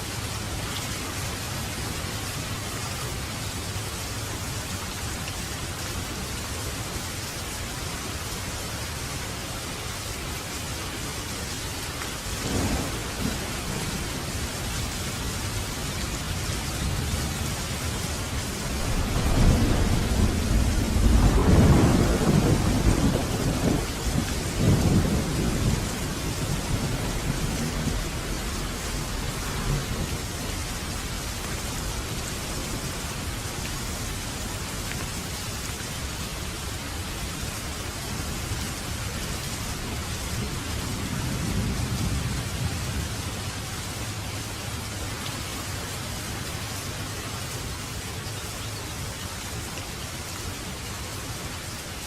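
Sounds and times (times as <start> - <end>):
steady rain: 0.0 - 52.0
thunder rumbling: 12.3 - 34.4, 39.8 - 43.2.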